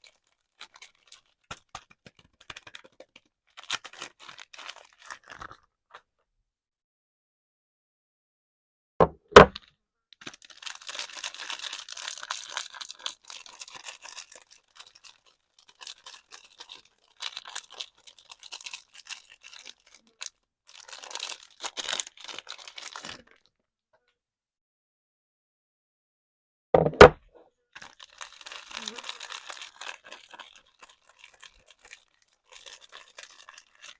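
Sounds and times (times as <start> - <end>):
soap packaging crinkling: 0.0 - 6.1, 9.5 - 23.5, 27.8 - 33.9
knocks: 9.0 - 9.6, 26.8 - 27.2.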